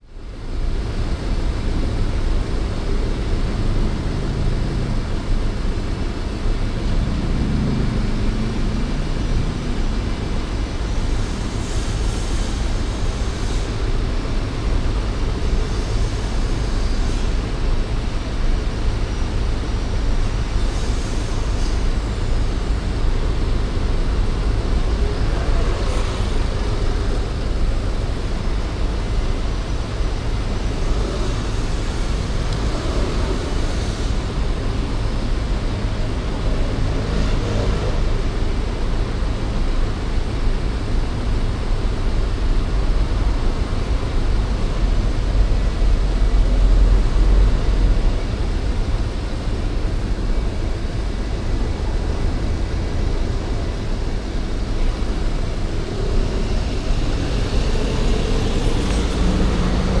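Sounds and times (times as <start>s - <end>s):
deep traffic rumble: 0.0s - 60.0s
passing cars: 1.0s - 60.0s.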